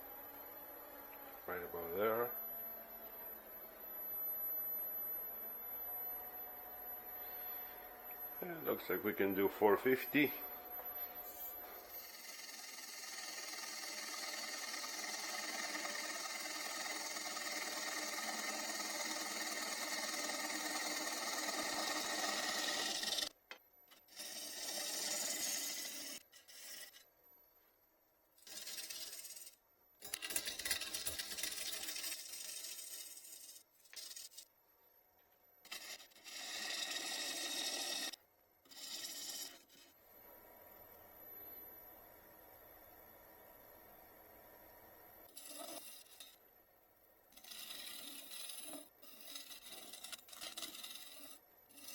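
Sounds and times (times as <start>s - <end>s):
wood lathe cutting with rasping shave: 11.4s - 23.3s, 23.9s - 27.0s, 28.4s - 34.4s, 35.7s - 39.9s, 45.3s - 46.3s, 47.4s - 51.9s.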